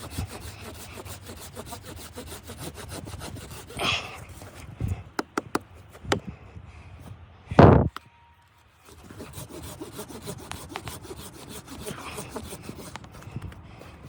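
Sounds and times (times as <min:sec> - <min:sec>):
loud rasping stroke: 0:00.0 - 0:04.4, 0:08.8 - 0:13.2.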